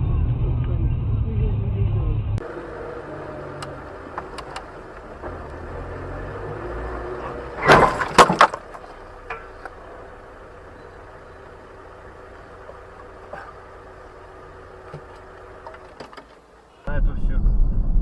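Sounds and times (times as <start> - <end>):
road noise: 0.0 - 18.0
car collision crunching impacts: 3.4 - 16.8.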